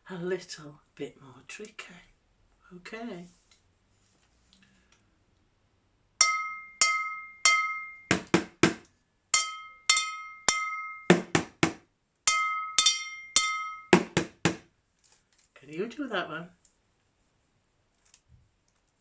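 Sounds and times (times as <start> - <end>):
ringing metal strikes: 6.2 - 8.4, 9.4 - 11.6, 12.3 - 14.2
dull knocks on kitchenware: 6.2 - 8.8, 9.4 - 14.6.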